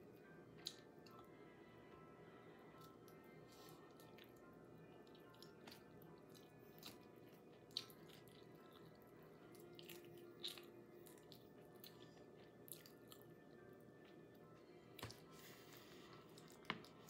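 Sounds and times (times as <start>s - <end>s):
chewing with mouth clicks: 3.8s - 14.2s.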